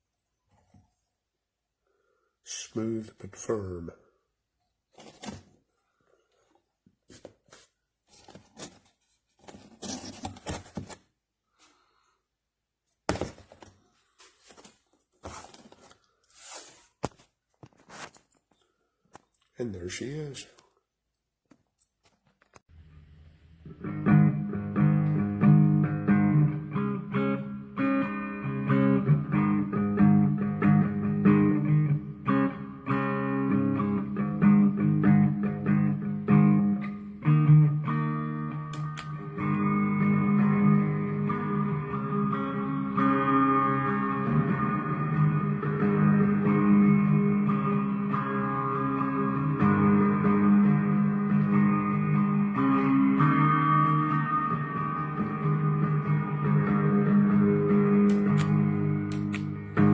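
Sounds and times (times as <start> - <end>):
rustling and handling objects: 4.7 - 11.9, 12.8 - 22.7
guitar riff: 22.8 - 59.9.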